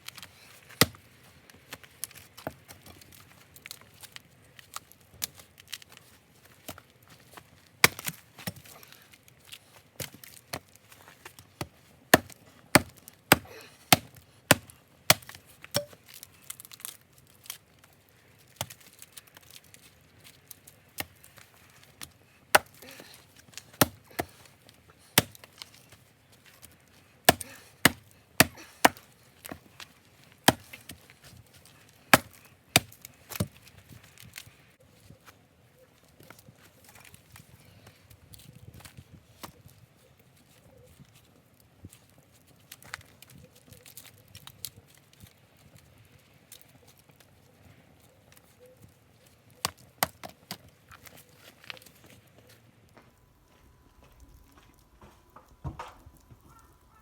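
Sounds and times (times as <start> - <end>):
hatchet chopping wood: 0.8 - 1.0, 7.8 - 8.7, 11.6 - 16.0, 22.5 - 24.4, 25.2 - 25.5, 27.3 - 29.6, 30.4 - 31.0, 32.1 - 33.6.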